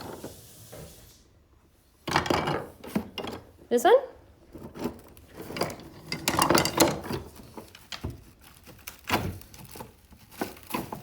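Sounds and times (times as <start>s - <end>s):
rustling: 7.0s - 11.0s.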